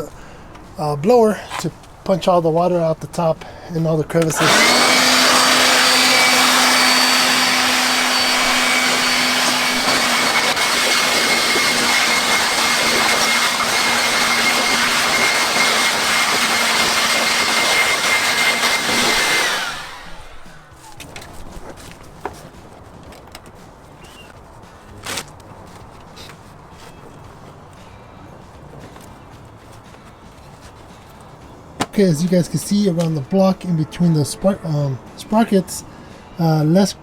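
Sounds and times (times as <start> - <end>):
air blower running: 4.2 - 21.3.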